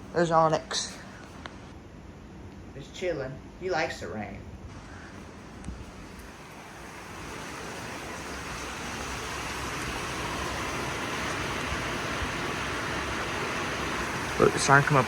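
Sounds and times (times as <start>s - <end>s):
heavy rain falling: 4.7s - 15.0s.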